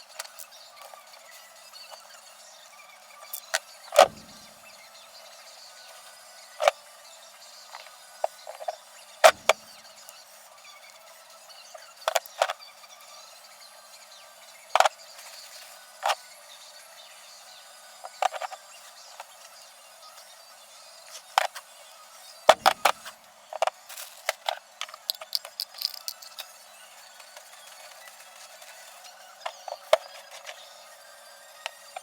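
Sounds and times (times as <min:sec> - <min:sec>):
metal tools clicking and clinking: 0:24.8 - 0:26.5.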